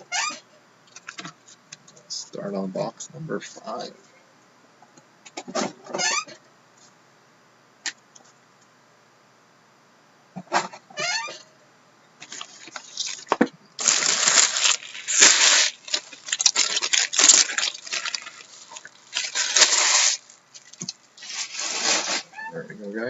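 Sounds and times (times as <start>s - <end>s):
plastic wrap crinkling and ripping: 12.2s - 22.3s.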